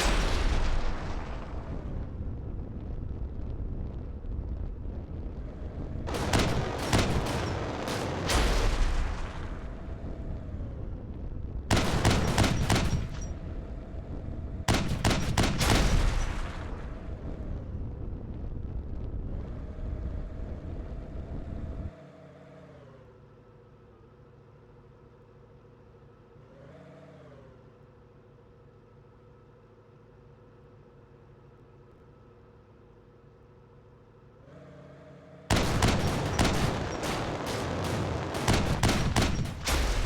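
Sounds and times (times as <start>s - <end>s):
exhaust backfire bangs: 0.0s - 3.3s, 5.4s - 17.7s, 35.5s - 40.0s
engine running: 0.0s - 40.0s.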